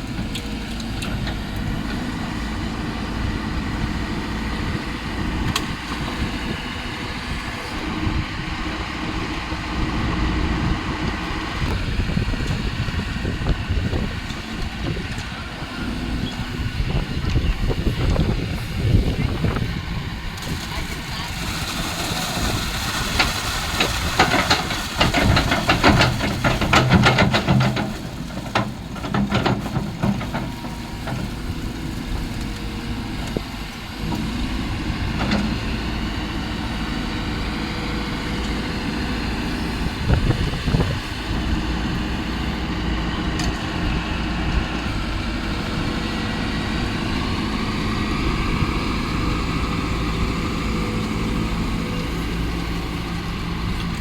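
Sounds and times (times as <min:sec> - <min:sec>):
excavator diesel engine running: 0:00.0 - 0:54.0
clattering and knocks: 0:23.2 - 0:31.3.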